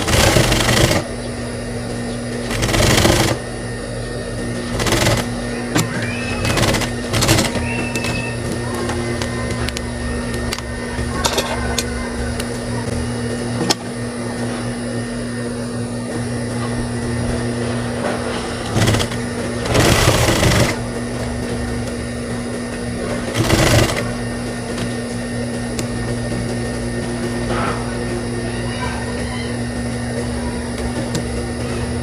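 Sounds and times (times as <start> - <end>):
sewing machine stitching: 0.0 - 1.1, 2.4 - 3.4, 4.6 - 8.4, 18.6 - 20.8, 23.2 - 24.1
sewing machine motor humming: 0.0 - 11.1, 16.1 - 28.5.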